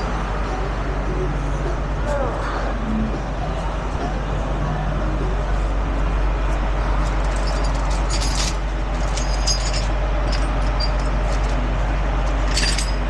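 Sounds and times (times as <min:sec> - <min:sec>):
truck engine idling: 0:00.0 - 0:13.0
metallic clinks of chain: 0:07.0 - 0:13.0.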